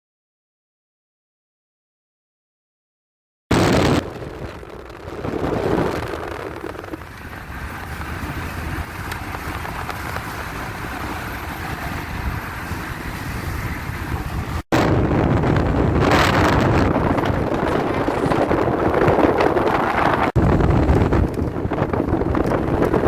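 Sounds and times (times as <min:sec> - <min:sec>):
road and wind noise: 0:03.5 - 0:23.0.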